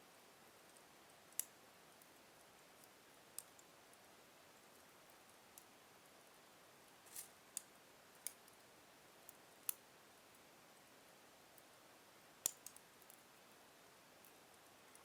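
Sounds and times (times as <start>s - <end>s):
faint fire hiss: 0.0s - 15.0s
logs crackling in fireplace: 12.4s - 13.4s.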